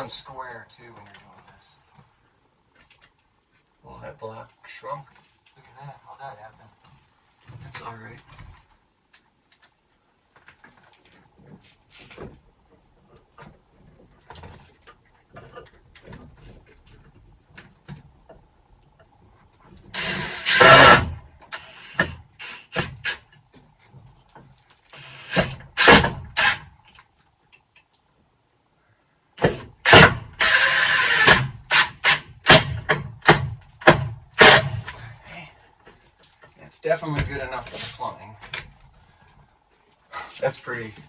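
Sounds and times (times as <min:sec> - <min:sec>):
power driver driving screws into wood: 0:19.9 - 0:23.2, 0:24.9 - 0:27.0, 0:29.4 - 0:35.0.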